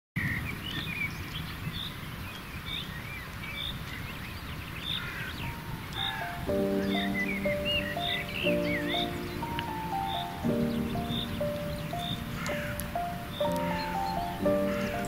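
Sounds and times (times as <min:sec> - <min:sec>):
songbirds chirping: 0:00.2 - 0:15.0
music with sustained chord: 0:05.5 - 0:15.0.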